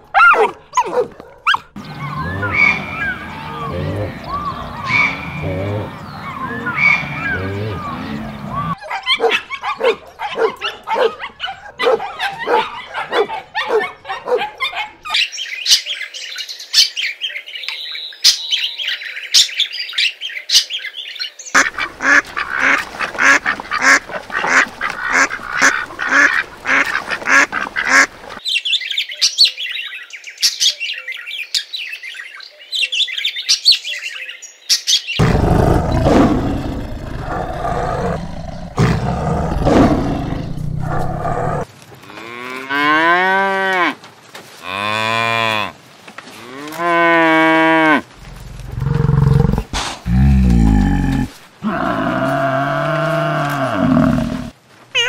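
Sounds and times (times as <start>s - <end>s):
ducks quacking: 1.8s - 8.8s, 21.6s - 28.4s.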